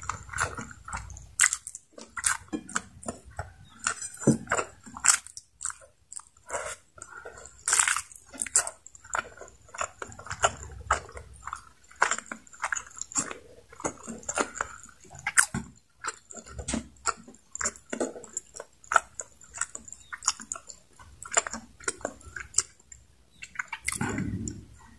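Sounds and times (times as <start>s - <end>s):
close chewing mouth clicks: 0.0s - 24.9s.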